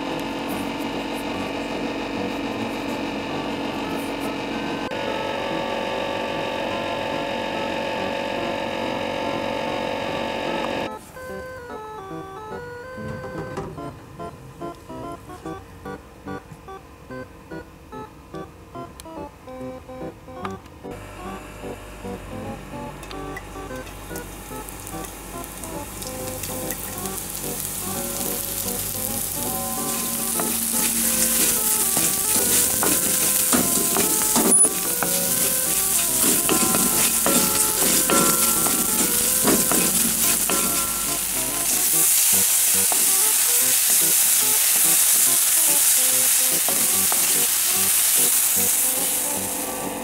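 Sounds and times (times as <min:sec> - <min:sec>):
food sizzling in oil: 0:23.8 - 0:50.0.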